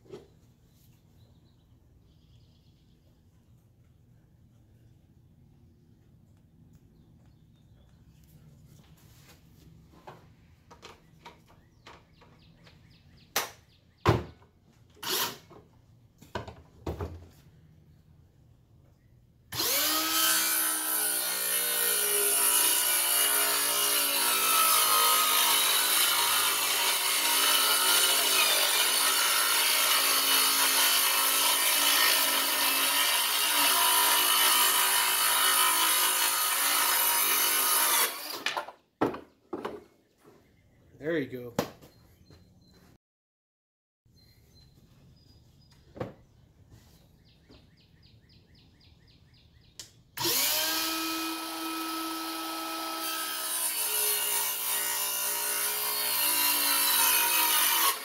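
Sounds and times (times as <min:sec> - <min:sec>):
circular saw cutting wood: 0:15.0 - 0:15.5, 0:19.5 - 0:38.6, 0:50.2 - 0:58.0.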